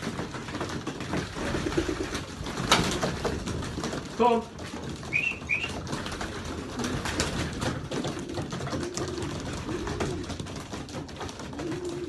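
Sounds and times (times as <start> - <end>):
birds rustling and clicking: 0.0 - 12.0
pigeons cooing: 7.9 - 10.6, 11.2 - 12.0.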